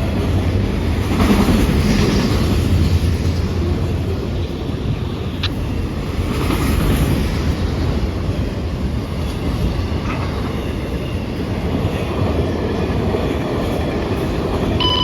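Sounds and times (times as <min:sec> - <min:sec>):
train wheels rumbling on rails: 0:00.0 - 0:15.0
short electronic beep: 0:14.8 - 0:15.0.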